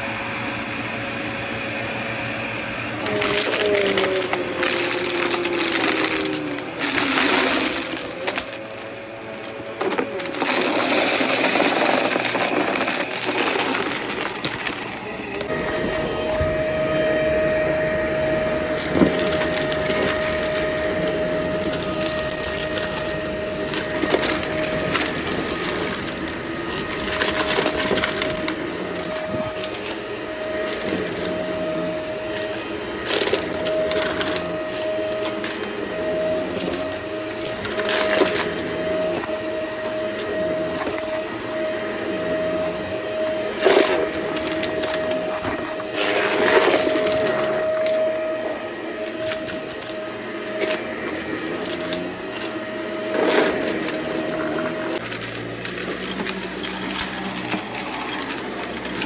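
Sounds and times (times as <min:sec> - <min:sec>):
vacuum cleaner whine: 0:00.0 - 0:59.0
debris crackling and rattling: 0:03.0 - 0:16.8, 0:18.6 - 0:41.2, 0:43.5 - 0:48.3, 0:49.0 - 0:59.0
sharp debris crunch: 0:43.6 - 0:47.8.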